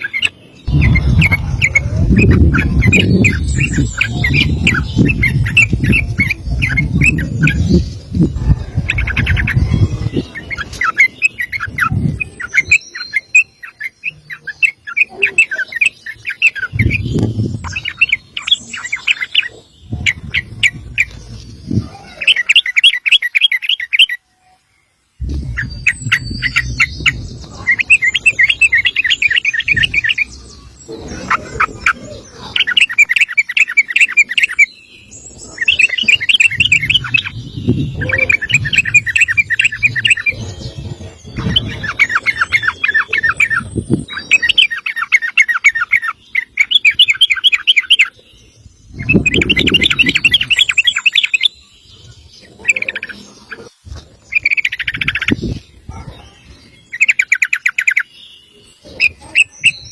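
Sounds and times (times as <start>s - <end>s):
bird chattering song: 0.0s - 24.2s, 25.2s - 59.9s
loud low rumble: 0.6s - 10.6s, 25.2s - 29.0s.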